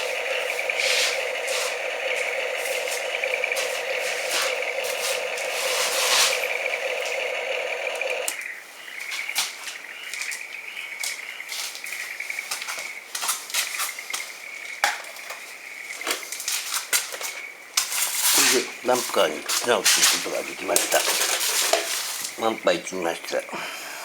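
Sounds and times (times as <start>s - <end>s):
sand and plastic clatter: 0.0s - 8.4s, 12.5s - 22.8s
small electric motors whining: 0.0s - 8.4s, 18.4s - 22.5s.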